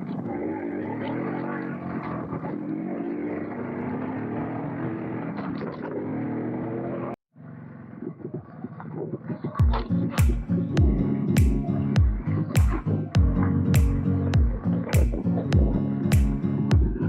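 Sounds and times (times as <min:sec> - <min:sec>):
motorcycle engine running: 0:00.0 - 0:08.9, 0:09.6 - 0:17.0
quieter engine sound: 0:09.7 - 0:17.0.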